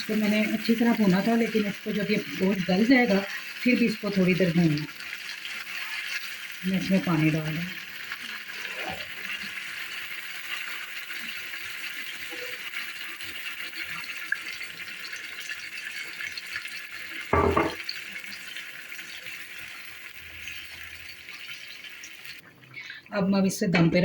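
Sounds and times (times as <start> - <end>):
pot hissing: 0.0 - 23.1
water poured into pot: 0.2 - 23.0
knock: 17.3 - 17.8.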